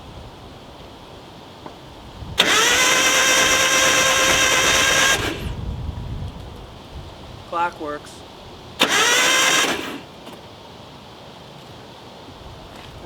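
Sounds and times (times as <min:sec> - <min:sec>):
starter motor cranking engine: 0:02.4 - 0:05.6, 0:08.7 - 0:10.3.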